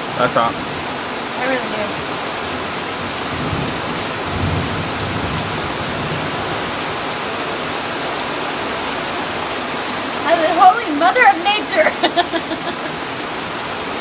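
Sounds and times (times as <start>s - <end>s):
heavy rain falling: 0.0s - 14.0s
low thunder rumble: 1.9s - 6.7s.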